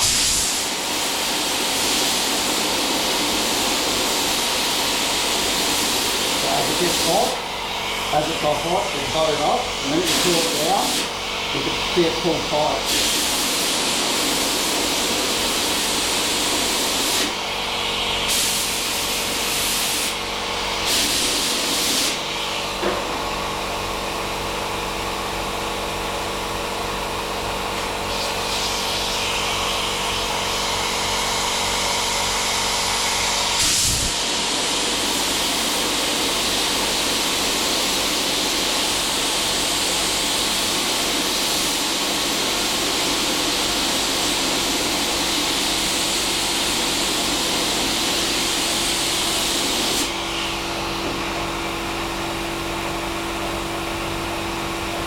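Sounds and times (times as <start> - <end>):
gas torch hiss: 0.0 - 17.5, 18.2 - 22.9, 27.7 - 31.3, 33.4 - 50.7
compressed air blasts: 0.0 - 23.0, 27.6 - 32.1, 33.4 - 51.4.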